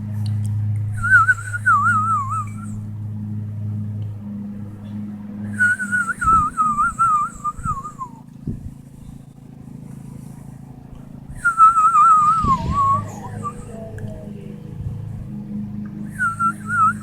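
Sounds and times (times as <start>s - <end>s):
person whistling bird call: 1.0s - 2.8s, 5.5s - 8.2s, 11.4s - 13.9s, 16.1s - 17.0s.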